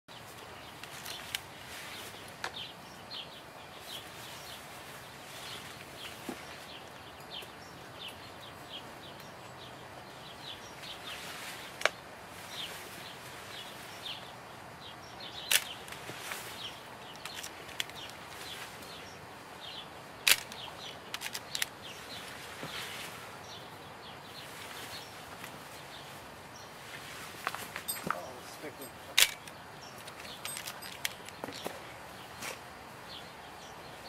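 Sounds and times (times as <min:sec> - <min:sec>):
small birds chirping: 0:00.1 - 0:34.0
sharp clicks: 0:20.2 - 0:21.8, 0:29.1 - 0:31.6.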